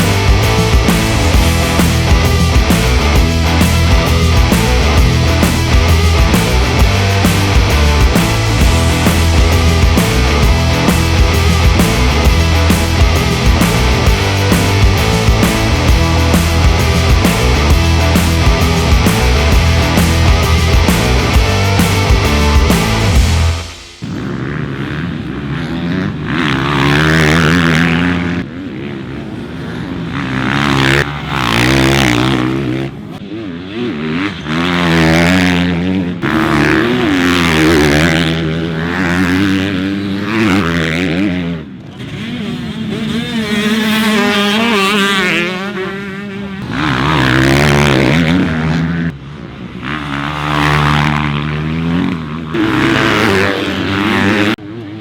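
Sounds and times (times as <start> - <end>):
motocross bikes revving: 0.0 - 55.0.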